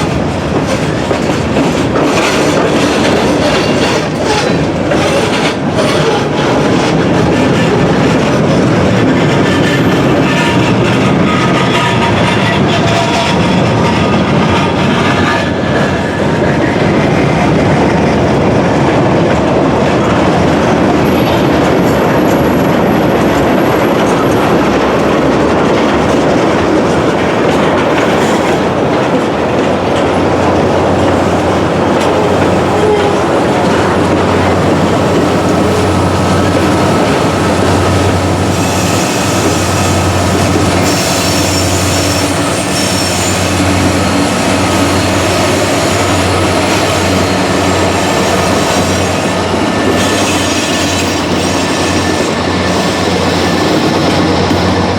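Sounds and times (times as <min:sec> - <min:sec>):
train wheels clattering on rails: 0:00.0 - 0:54.9
high wheel squeal: 0:34.4 - 0:54.6.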